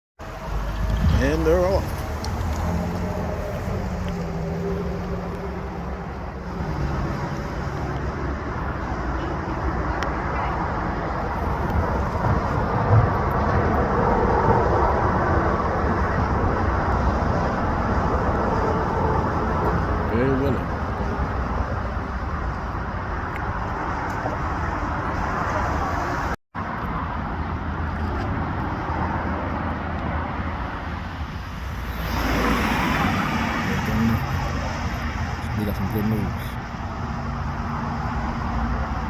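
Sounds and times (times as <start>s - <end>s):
car pulling away: 0.2s - 9.1s
road and traffic noise: 0.2s - 39.0s.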